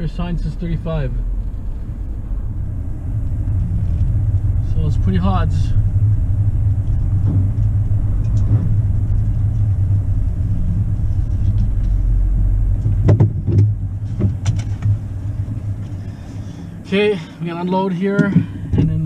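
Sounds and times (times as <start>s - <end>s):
truck engine and road rumble: 0.0s - 19.0s
sharp knocks: 12.8s - 15.0s.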